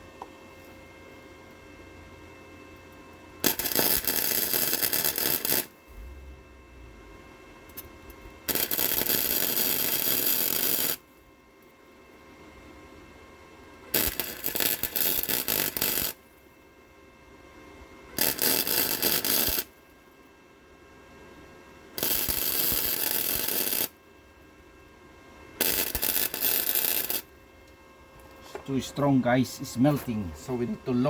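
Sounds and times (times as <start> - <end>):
welding arc crackling: 3.4 - 11.0, 14.0 - 16.2, 18.2 - 19.7, 22.0 - 23.9, 25.6 - 27.3.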